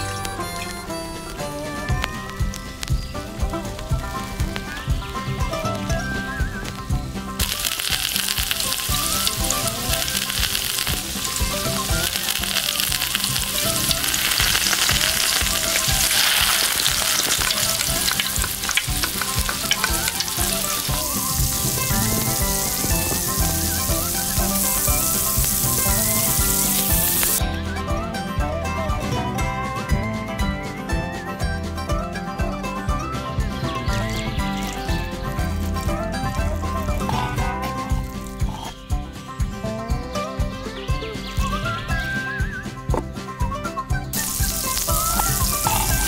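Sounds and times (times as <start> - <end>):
light background music: 0.0 - 46.0
food sizzling in hot oil: 7.4 - 27.4, 44.1 - 46.0.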